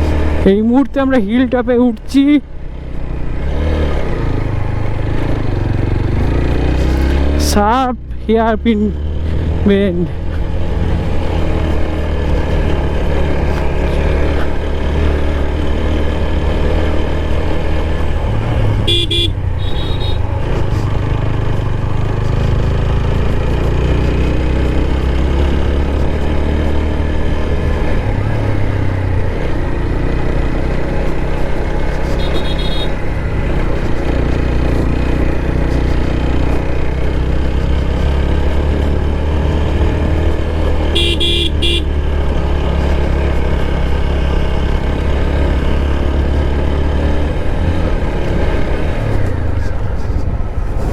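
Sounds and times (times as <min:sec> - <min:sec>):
motorcycle engine under load: 0:00.0 - 0:50.9
horn beeping: 0:18.8 - 0:20.5, 0:32.1 - 0:33.2, 0:40.8 - 0:42.1.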